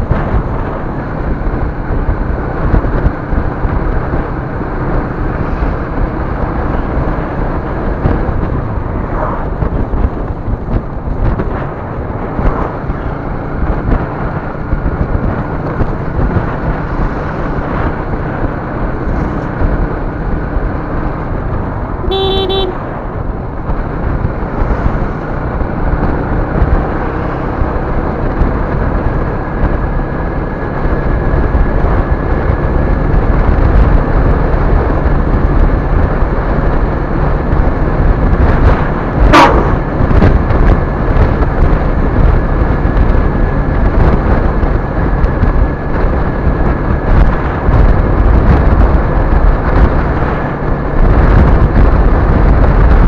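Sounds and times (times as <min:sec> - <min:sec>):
vehicle road and engine noise: 0:00.0 - 0:53.0
vehicle horn honk: 0:22.0 - 0:22.9.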